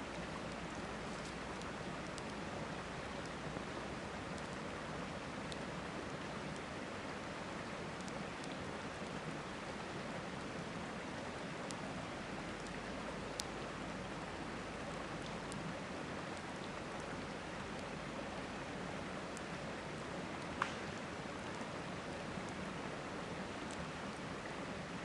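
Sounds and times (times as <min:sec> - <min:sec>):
campfire crackling and popping: 0:20.4 - 0:21.6.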